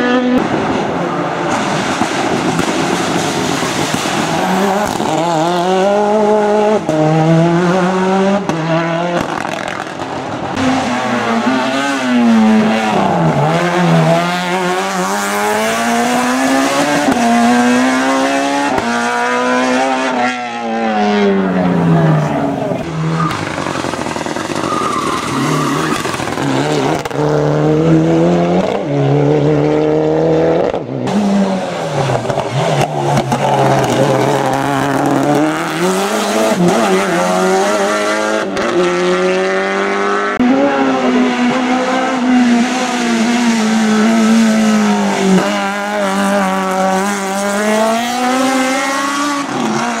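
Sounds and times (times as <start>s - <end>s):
racing car engine at full throttle: 0.0s - 50.0s
tyre squeal: 22.9s - 26.8s.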